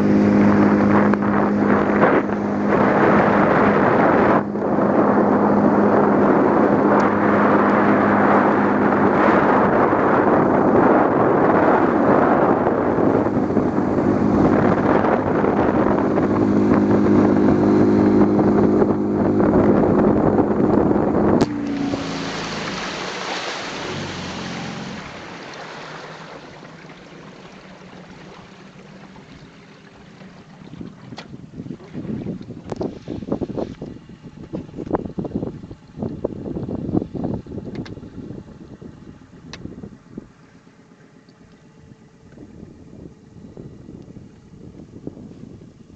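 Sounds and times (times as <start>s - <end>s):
rushing water: 0.0s - 33.8s
motorboat engine running: 0.0s - 45.9s
wind: 0.0s - 45.9s.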